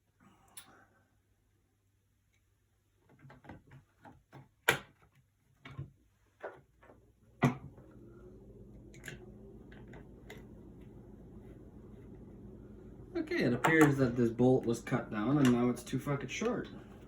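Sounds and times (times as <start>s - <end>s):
steady low hum: 7.6s - 17.0s.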